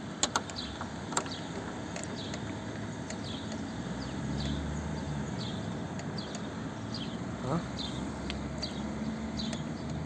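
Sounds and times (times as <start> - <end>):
small bird chirping: 0.4 - 10.0.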